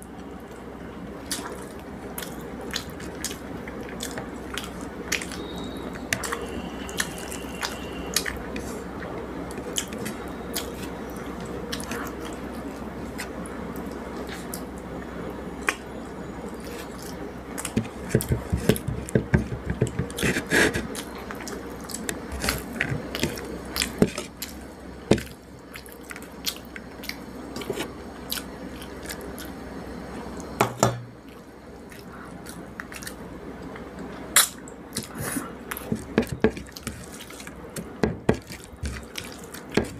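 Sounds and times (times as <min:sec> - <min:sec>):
steady background hum: 0:00.0 - 0:39.9
chewing: 0:01.2 - 0:14.7, 0:25.2 - 0:29.6, 0:31.2 - 0:39.9
wet mixing of rice by hand: 0:35.0 - 0:39.9.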